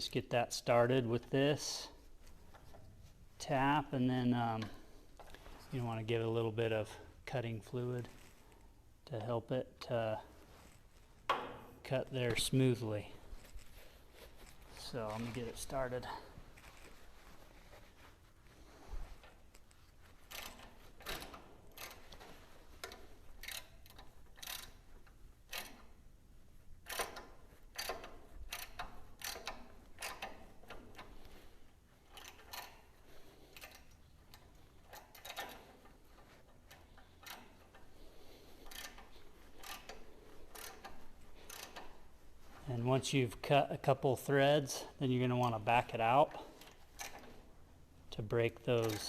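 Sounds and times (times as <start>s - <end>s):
thread tap clicking and creaking: 19.1s - 26.0s, 26.8s - 31.4s, 32.0s - 42.2s, 46.0s - 47.5s.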